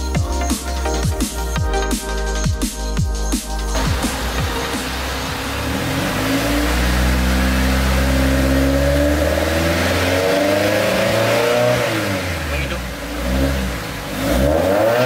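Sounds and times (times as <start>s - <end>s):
car engine revving: 3.2s - 15.0s.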